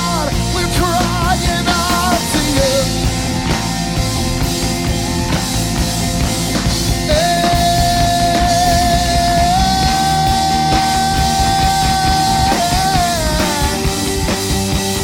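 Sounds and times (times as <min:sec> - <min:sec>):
person singing: 0:00.0 - 0:03.6, 0:06.8 - 0:14.3
live rock band playing: 0:00.0 - 0:15.0.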